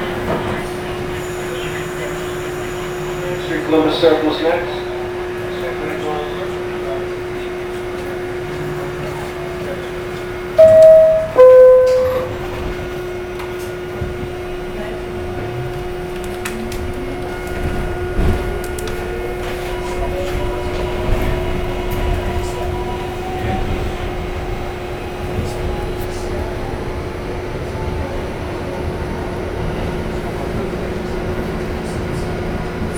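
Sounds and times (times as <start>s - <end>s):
two-tone door chime: 10.6s - 12.6s.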